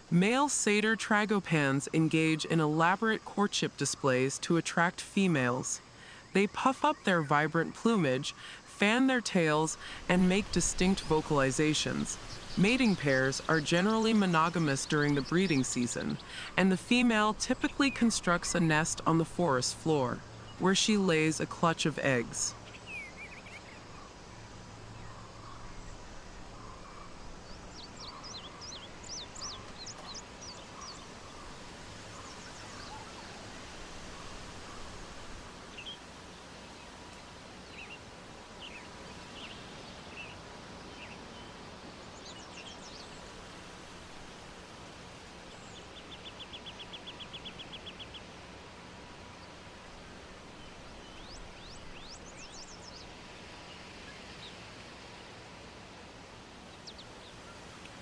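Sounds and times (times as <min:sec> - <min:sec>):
outdoor background noise: 0:00.0 - 0:58.0
small birds calling: 0:09.3 - 0:48.6, 0:49.2 - 0:54.8, 0:56.6 - 0:58.0.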